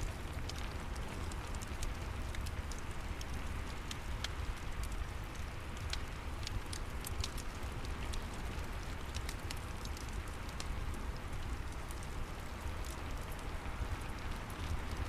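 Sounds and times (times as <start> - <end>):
steady rain: 0.0 - 15.0
wood fire crackling: 0.0 - 15.0.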